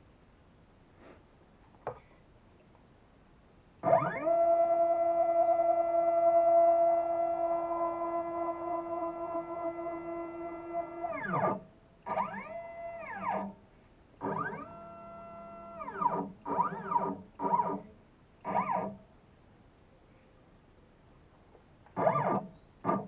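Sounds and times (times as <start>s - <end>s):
stepper motors whining: 3.8s - 13.5s, 14.2s - 17.8s, 22.0s - 23.0s.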